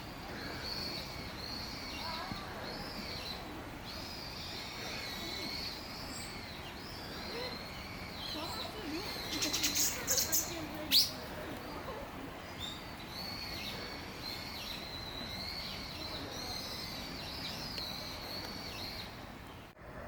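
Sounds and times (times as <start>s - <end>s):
bird chirping: 0.0s - 11.2s
thin high bird song: 0.0s - 19.8s.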